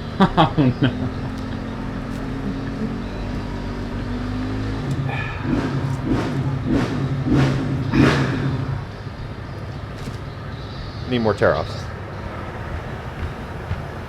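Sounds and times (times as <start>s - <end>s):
vehicle engine surging: 0.0s - 14.0s.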